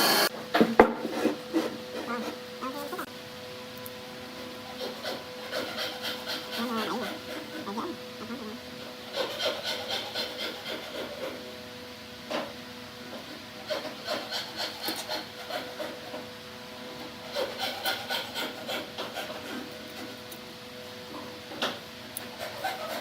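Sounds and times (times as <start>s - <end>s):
hand saw on wood: 0.8s - 2.4s, 4.7s - 7.9s, 8.9s - 11.5s, 13.1s - 16.4s, 17.0s - 20.3s, 21.1s - 23.0s.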